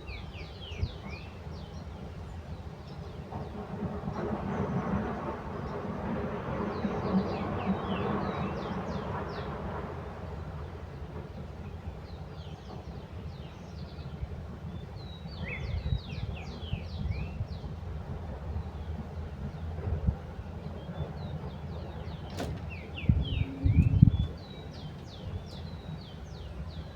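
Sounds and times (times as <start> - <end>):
small birds chirping: 20.7 - 26.9
steady low rumble: 21.8 - 26.9.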